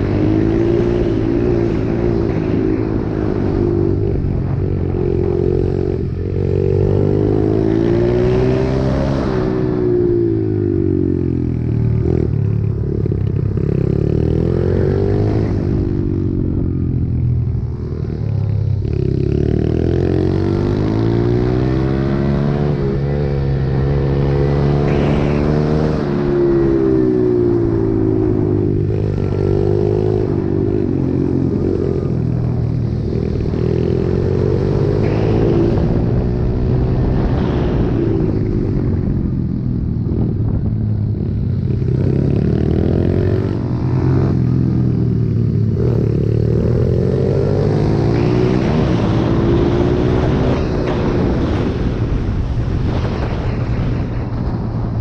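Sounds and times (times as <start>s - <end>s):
motorbike engine revving: 18.8s - 55.0s.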